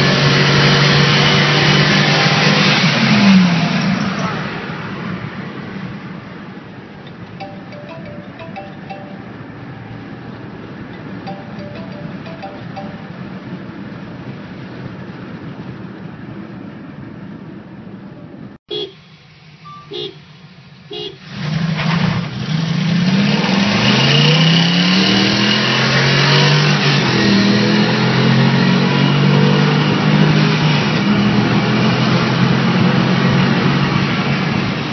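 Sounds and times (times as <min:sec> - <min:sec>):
car horn toots: 0:18.7 - 0:19.0, 0:19.7 - 0:20.3, 0:20.9 - 0:21.3.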